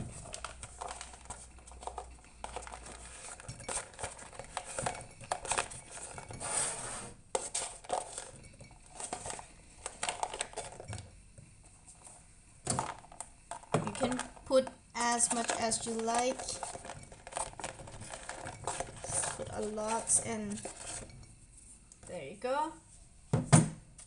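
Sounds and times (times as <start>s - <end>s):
nuts clinking in a jar: 12.7s - 21.3s.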